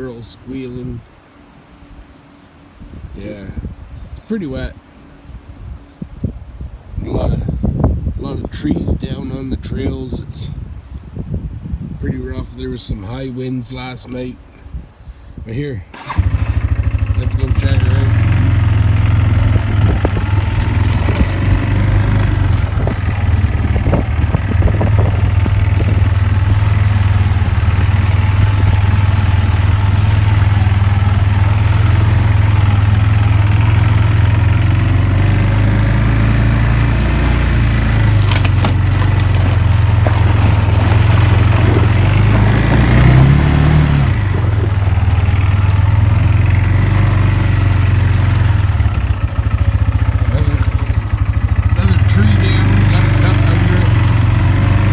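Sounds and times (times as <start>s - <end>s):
atv engine running and revving: 16.0s - 54.9s.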